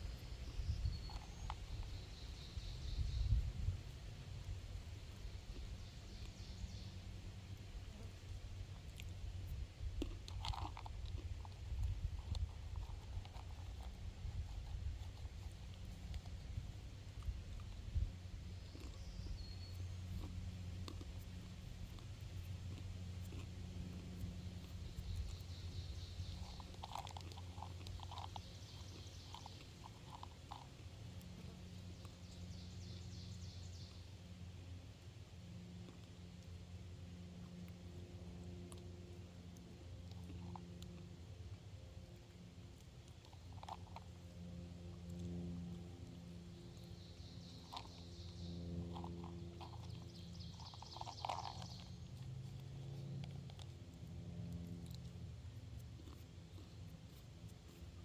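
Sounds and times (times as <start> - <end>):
birds chirping: 0.0 - 3.5, 5.1 - 7.1, 18.5 - 20.4, 23.9 - 30.9, 31.9 - 34.1, 46.7 - 52.2
faint high calls and ticks: 0.0 - 9.2, 10.2 - 34.8, 37.4 - 58.0
steady low hum: 0.0 - 58.0.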